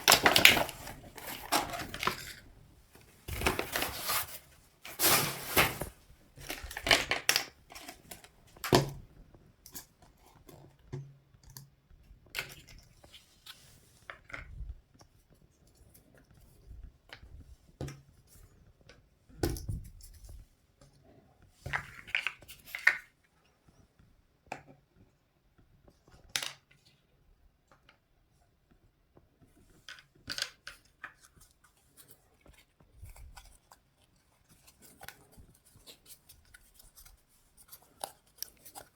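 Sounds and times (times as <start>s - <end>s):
packaging clicks: 0.0s - 2.4s
packaging rustling: 0.0s - 8.3s.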